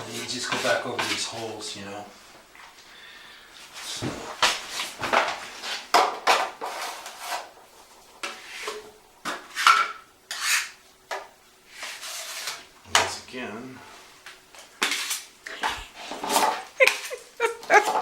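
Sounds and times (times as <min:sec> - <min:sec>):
drywall knife scraping: 0:05.6 - 0:10.8, 0:11.7 - 0:12.7.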